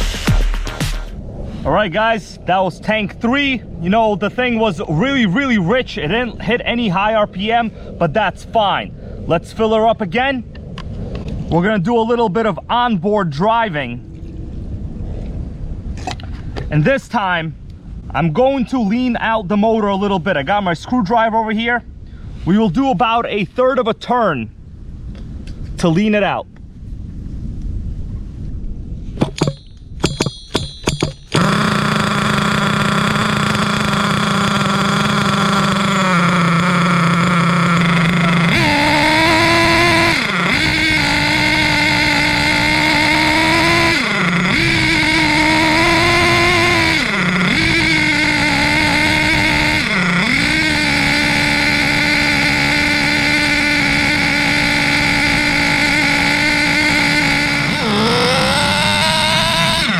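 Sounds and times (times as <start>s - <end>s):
nitro model engine revving: 31.2s - 59.9s.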